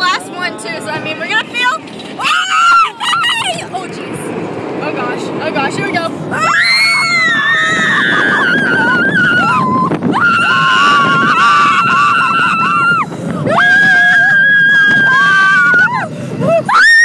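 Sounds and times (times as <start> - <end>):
roller coaster rumble: 0.0 - 17.0
riders screaming: 6.3 - 17.0.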